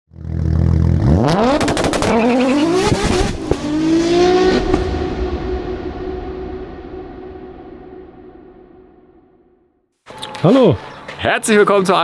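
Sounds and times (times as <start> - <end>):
car engine idling and revving: 0.1 - 8.6.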